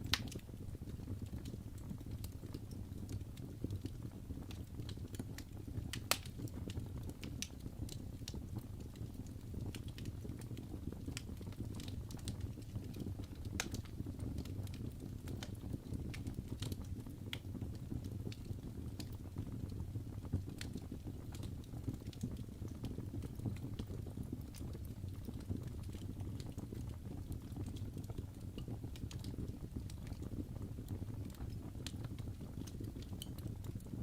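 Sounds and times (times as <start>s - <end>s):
fire crackles and pops: 0.0s - 34.0s
fire rumbling: 0.0s - 34.0s.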